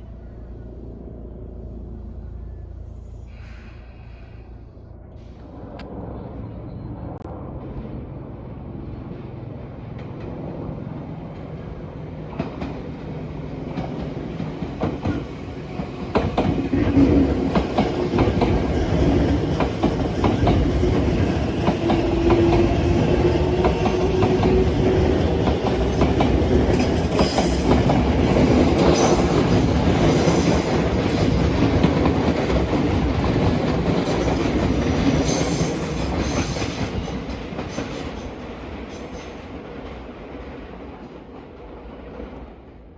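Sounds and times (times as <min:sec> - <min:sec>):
electric train passing: 0:00.0 - 0:42.9.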